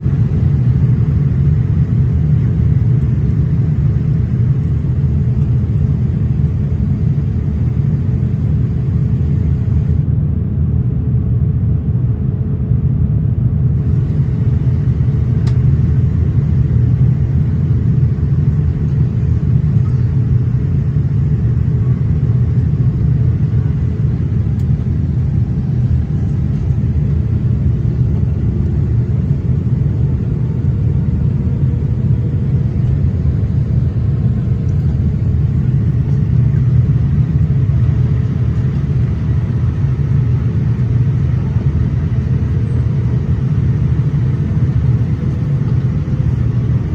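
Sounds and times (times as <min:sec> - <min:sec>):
airliner engines and airflow rumble: 0:00.0 - 0:46.9
faint steady hum: 0:00.0 - 0:46.9.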